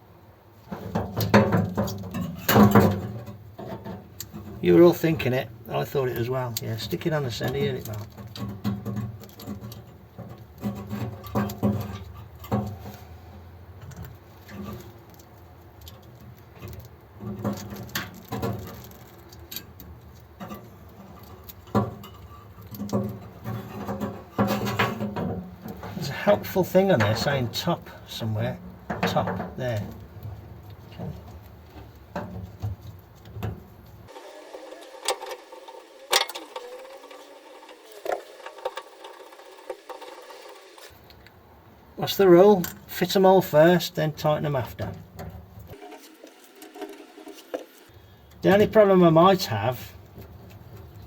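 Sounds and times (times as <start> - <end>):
small parts clicking and rustling: 0.6 - 28.0, 28.6 - 41.4.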